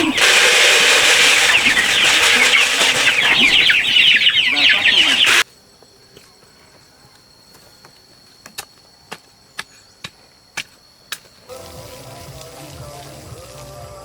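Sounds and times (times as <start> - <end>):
chickens clucking: 0.0 - 5.4
music: 11.4 - 14.0.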